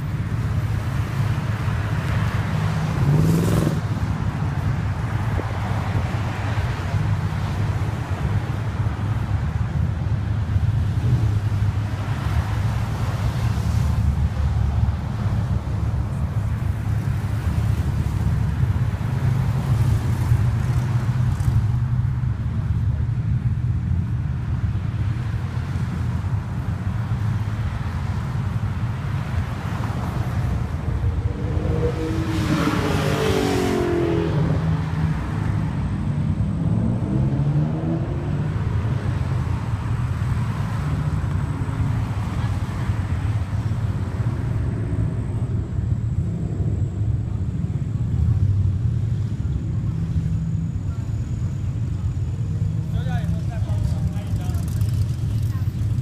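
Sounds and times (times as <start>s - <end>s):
car engines rumbling: 0.0s - 56.0s
car passing close: 28.0s - 47.5s.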